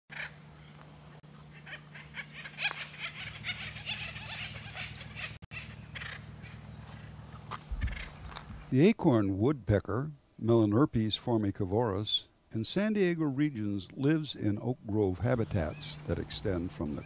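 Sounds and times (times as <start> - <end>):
steady low hum: 0.1 - 17.0
woodpeckers calling: 1.4 - 8.7, 15.1 - 17.0.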